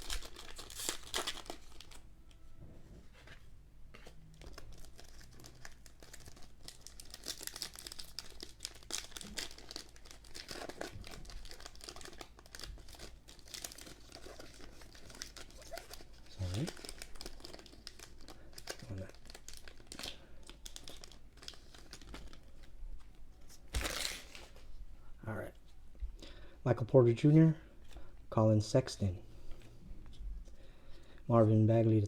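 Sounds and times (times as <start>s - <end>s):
wrapper crinkling and tearing: 0.0s - 2.0s, 4.0s - 22.8s, 23.5s - 24.7s.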